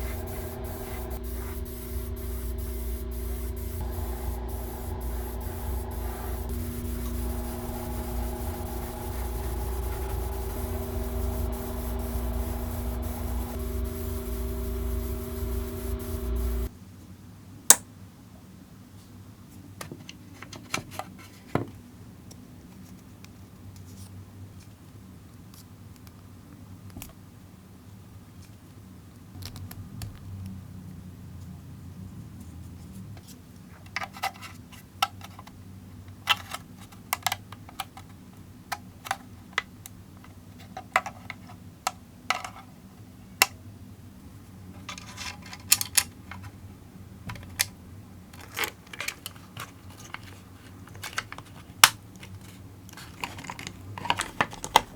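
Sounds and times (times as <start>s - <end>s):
steady low hum: 0.0s - 16.7s
plastic parts clicking: 48.4s - 54.9s.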